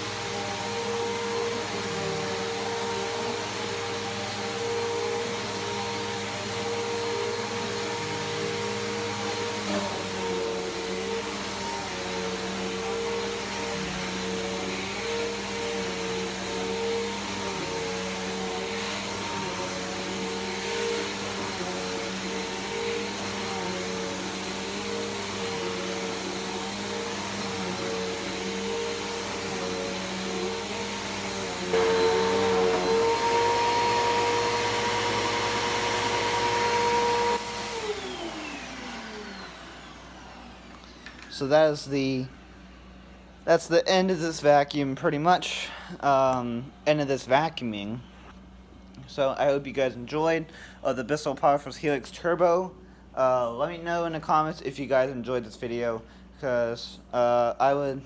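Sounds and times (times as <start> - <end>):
upright vacuum cleaner running: 0.0 - 43.4.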